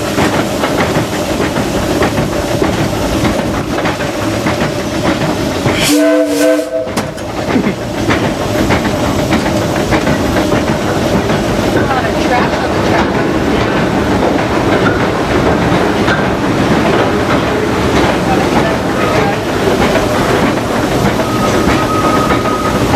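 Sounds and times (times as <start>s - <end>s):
steam locomotive running: 0.0s - 22.9s
steam whistle toot: 5.8s - 7.1s, 21.2s - 22.9s
rattling clicks from wheels: 6.9s - 22.9s.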